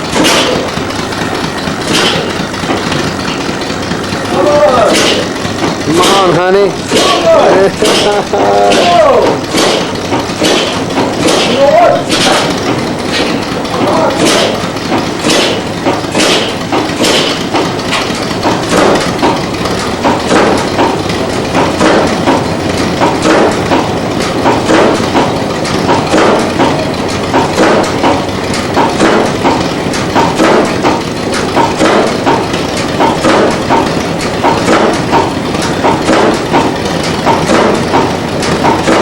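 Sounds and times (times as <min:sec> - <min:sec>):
engine running with knocking: 0:00.0 - 0:39.0.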